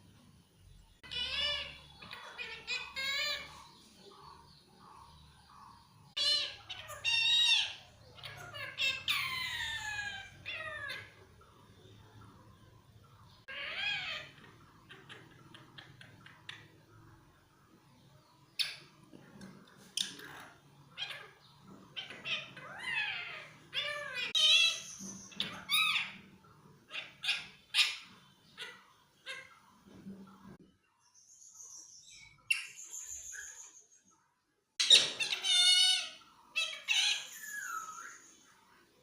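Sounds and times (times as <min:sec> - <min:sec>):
parrot squawking: 0:01.0 - 0:03.8, 0:06.1 - 0:11.3, 0:13.5 - 0:16.7, 0:19.9 - 0:29.7, 0:34.8 - 0:38.3.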